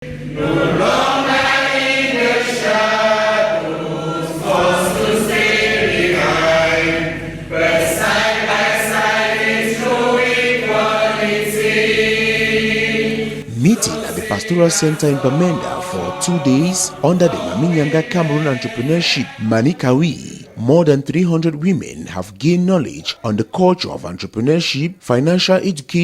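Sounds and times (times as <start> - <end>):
group of voices singing: 0.0 - 20.7.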